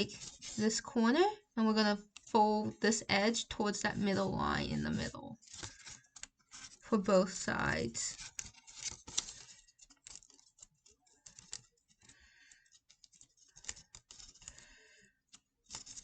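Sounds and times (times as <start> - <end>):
paper being folded and creased: 0.0 - 0.8, 2.0 - 2.4, 5.4 - 16.0.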